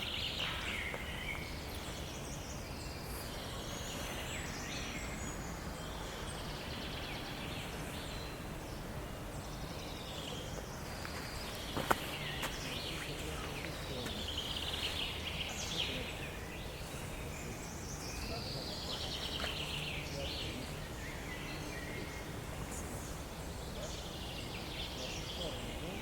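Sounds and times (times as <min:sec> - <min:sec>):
birds singing and chirping: 0:00.0 - 0:26.0.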